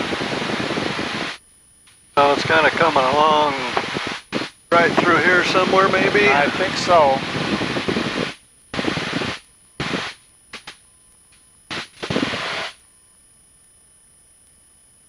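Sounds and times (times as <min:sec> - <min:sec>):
faint hum: 0:00.0 - 0:15.0
aircraft cabin noise bursts: 0:02.2 - 0:10.8, 0:11.7 - 0:12.8.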